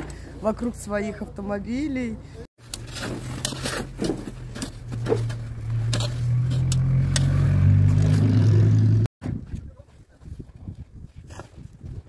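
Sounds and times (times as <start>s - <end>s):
snow shovels scraping: 2.6s - 8.4s.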